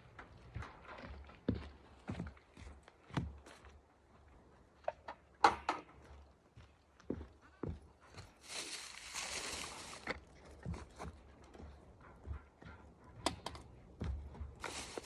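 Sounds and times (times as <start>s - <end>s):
rustling: 8.4s - 10.1s, 14.6s - 15.0s.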